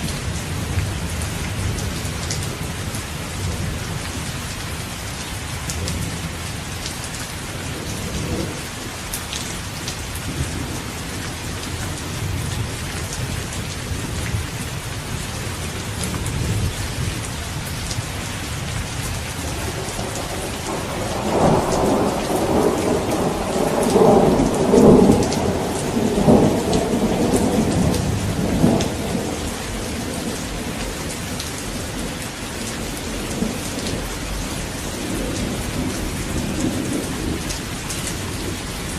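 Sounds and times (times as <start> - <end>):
heavy rain pattering: 0.0 - 38.9
thunder rumbling: 10.3 - 38.9.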